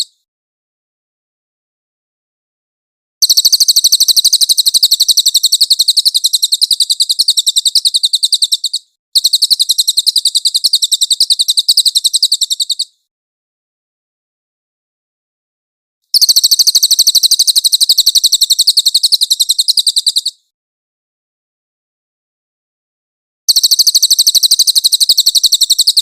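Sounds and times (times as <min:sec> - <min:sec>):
bird high-pitched trill: 0:03.2 - 0:13.0, 0:16.1 - 0:20.4, 0:23.5 - 0:26.0.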